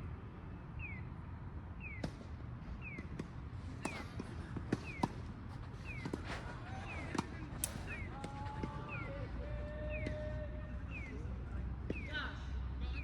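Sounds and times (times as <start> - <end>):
tennis balls struck and bouncing: 1.9 - 8.9.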